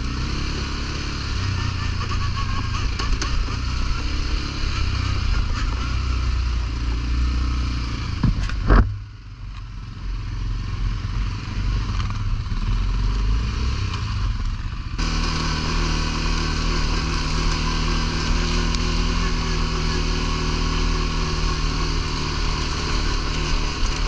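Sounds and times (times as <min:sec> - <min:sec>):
atv engine revving: 0:00.0 - 0:09.0, 0:09.8 - 0:24.0.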